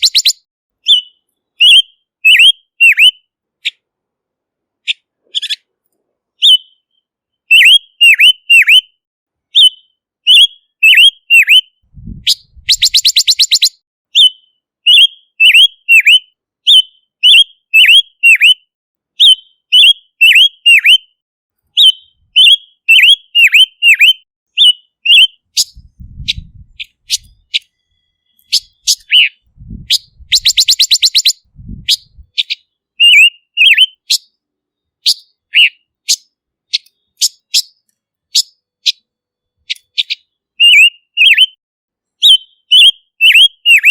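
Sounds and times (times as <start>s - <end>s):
bird whistling sharp notes: 0.0s - 3.2s, 6.4s - 18.6s, 19.2s - 21.1s, 21.8s - 34.4s, 35.0s - 37.8s, 39.7s - 41.6s, 42.2s - 43.9s
bird rattling trill: 12.3s - 13.7s, 29.9s - 32.2s.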